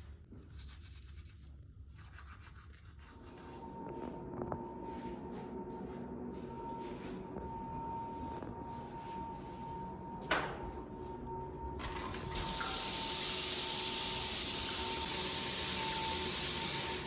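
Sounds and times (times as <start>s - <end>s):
loud hissing spray: 12.4s - 17.0s.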